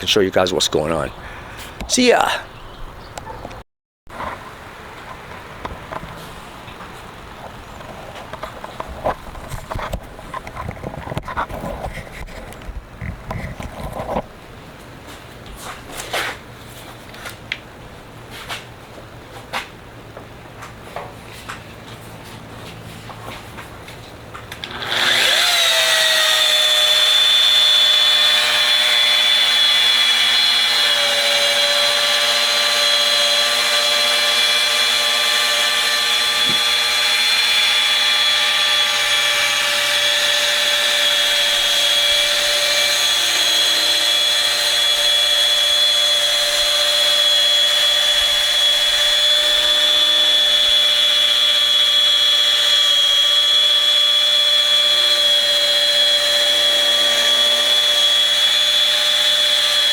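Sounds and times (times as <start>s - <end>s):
electric polisher whining: 24.5s - 59.9s.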